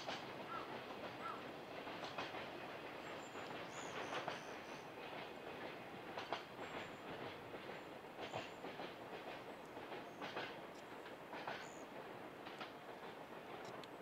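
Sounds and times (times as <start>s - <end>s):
distant train rumble: 0.0s - 14.0s
wheels clacking over rail joints: 0.0s - 14.0s.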